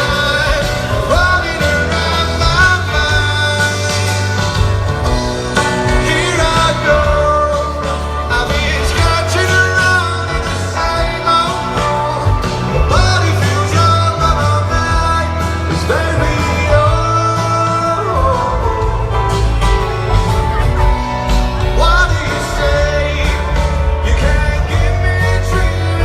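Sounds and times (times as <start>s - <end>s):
heavy bass line: 0.0s - 26.0s
lead vocal singing: 0.0s - 26.0s
rock band playing live: 0.0s - 26.0s.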